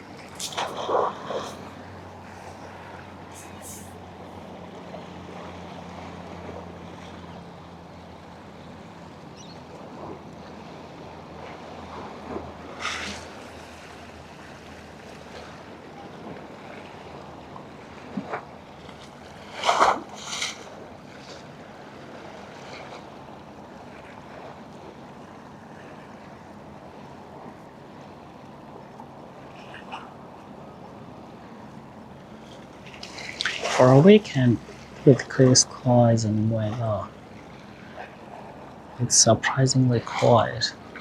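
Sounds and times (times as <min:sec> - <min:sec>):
boat engine humming: 0:00.0 - 0:41.0
water: 0:00.0 - 0:41.0
wind: 0:00.0 - 0:41.0.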